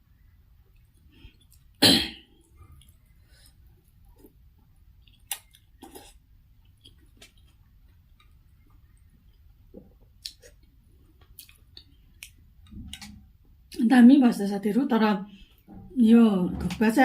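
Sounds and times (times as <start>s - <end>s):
person chewing: 0.6s - 1.8s, 2.4s - 13.3s.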